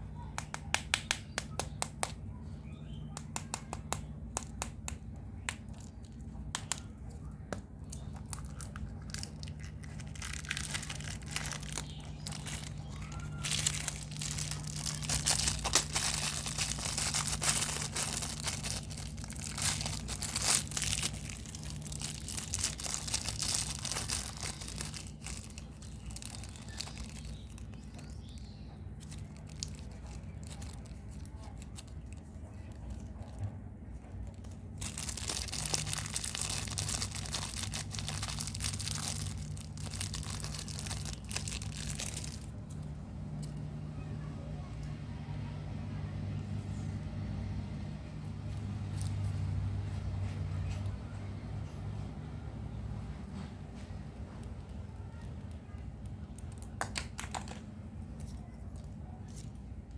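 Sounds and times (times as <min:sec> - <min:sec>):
faint low hum: 0:00.0 - 0:59.9
wrappers crinkling and tearing: 0:05.4 - 0:42.9, 0:55.4 - 0:57.6.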